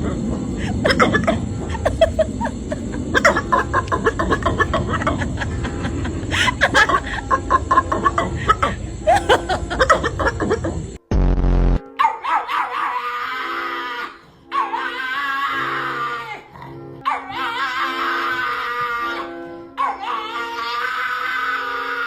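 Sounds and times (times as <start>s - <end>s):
dog making laugh-like sounds: 0.0s - 10.9s
noisy background: 0.0s - 11.0s
loud buzzy tone: 10.8s - 11.8s.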